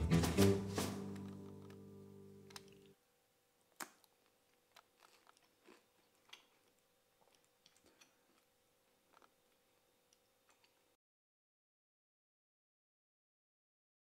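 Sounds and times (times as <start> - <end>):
brittle cracking in a bite: 3.8 - 8.5
crunchy chewing: 3.8 - 10.9.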